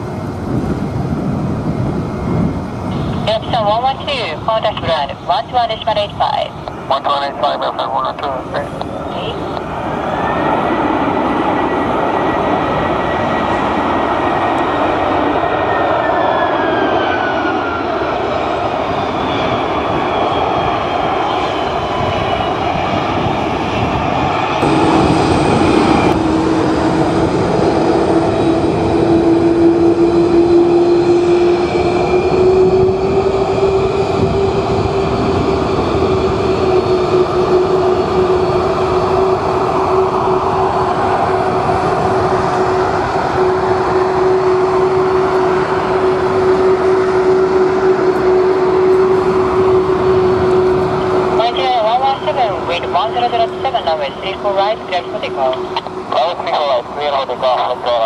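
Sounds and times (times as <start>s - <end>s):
jet engines whining: 0.0s - 58.0s
steady hum: 2.9s - 9.7s, 39.1s - 58.0s.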